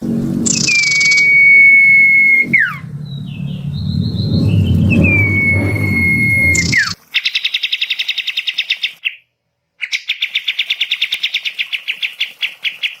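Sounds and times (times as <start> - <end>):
songbird trilling: 0.4 - 9.0.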